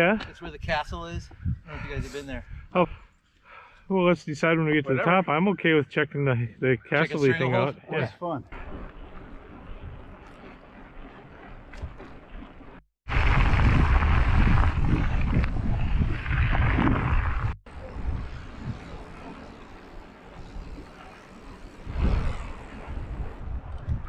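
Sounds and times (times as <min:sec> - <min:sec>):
wind buffeting microphone: 0:00.2 - 0:03.0, 0:13.1 - 0:24.0
tyres rumbling over rough ground: 0:08.5 - 0:23.4.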